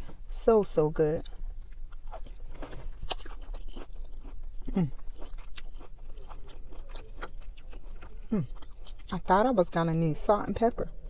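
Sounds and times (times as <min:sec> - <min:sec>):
person chewing green beans: 0:01.2 - 0:09.3.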